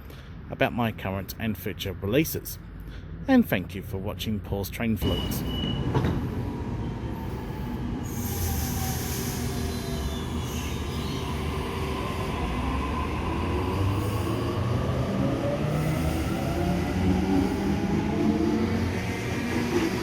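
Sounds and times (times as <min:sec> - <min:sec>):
train wheels rumbling on rail: 0:05.0 - 0:20.0.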